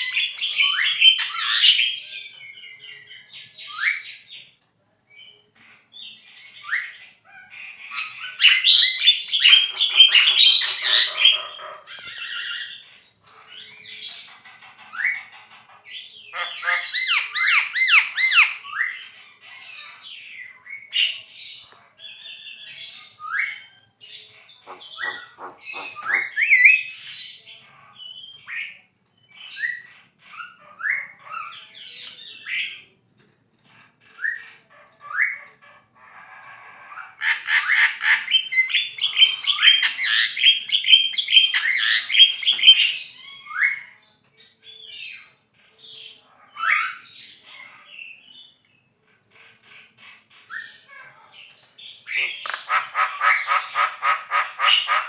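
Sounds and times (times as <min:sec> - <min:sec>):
myna squawks and chatter: 0:05.6 - 0:28.8, 0:33.6 - 0:44.0, 0:45.0 - 0:55.0.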